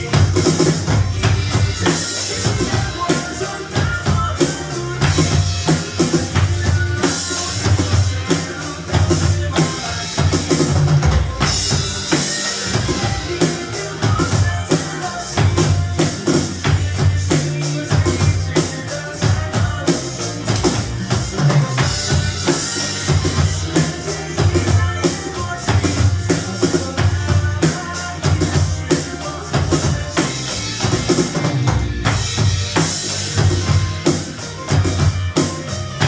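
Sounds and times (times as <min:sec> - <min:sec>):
drum kit playing: 0:00.0 - 0:36.0
slow rock ballad backing track: 0:00.0 - 0:36.0.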